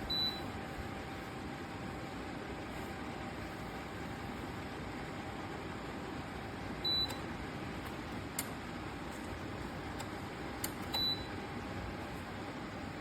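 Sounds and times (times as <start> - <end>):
heater fan hiss: 0.0 - 13.0
short high-pitched beeps: 0.1 - 0.4.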